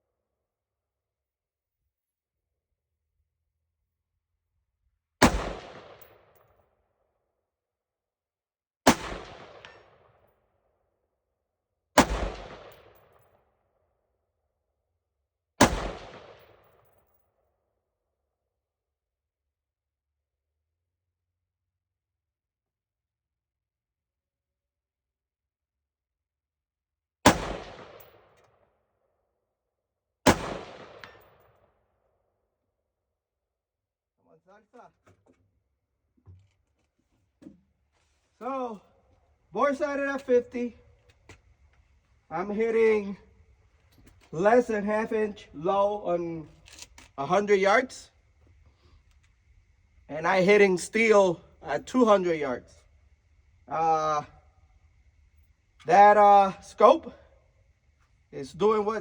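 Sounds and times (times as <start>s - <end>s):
rifle shots with echo: 5.2s - 6.4s, 8.9s - 10.2s, 12.0s - 13.2s, 15.6s - 16.9s, 27.2s - 28.4s, 30.2s - 31.6s.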